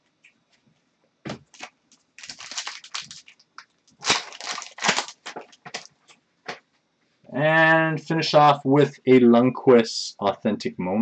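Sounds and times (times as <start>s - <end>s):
trading cards rustling: 1.4s - 6.1s.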